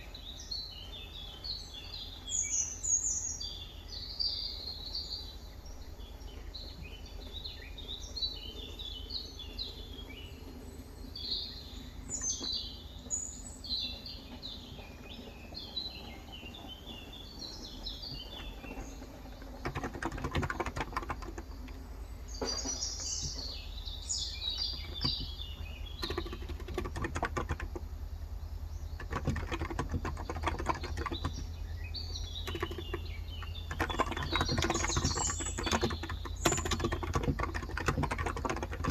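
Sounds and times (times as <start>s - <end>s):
small birds chirping: 0.0s - 38.9s
steady low hum: 0.0s - 38.9s
keyboard typing: 18.1s - 21.9s, 24.4s - 28.0s, 29.0s - 38.9s.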